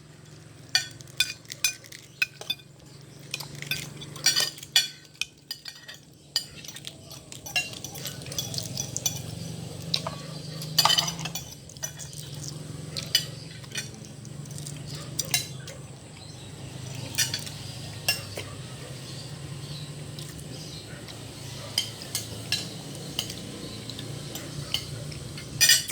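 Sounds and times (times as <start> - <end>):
cutlery clinking and scraping on plate: 0.2 - 25.9.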